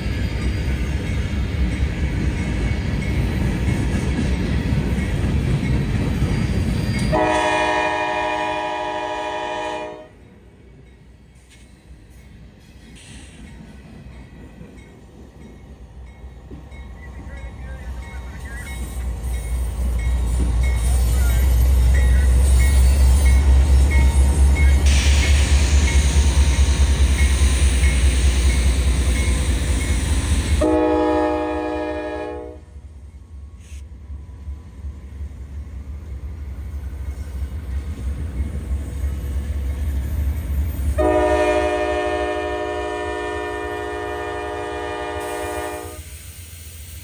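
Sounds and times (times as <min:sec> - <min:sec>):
locomotive engine rumble: 0:00.0 - 0:45.8
locomotive horn: 0:07.1 - 0:10.2, 0:30.6 - 0:32.7, 0:41.0 - 0:46.1
rushing hiss: 0:18.7 - 0:30.6, 0:45.2 - 0:47.0.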